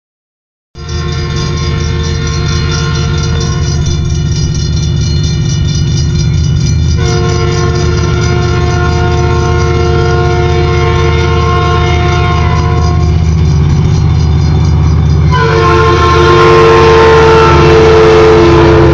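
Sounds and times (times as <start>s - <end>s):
train horn: 0.8s - 4.1s, 6.9s - 13.5s, 15.2s - 18.9s
train passing rumble: 0.8s - 18.9s.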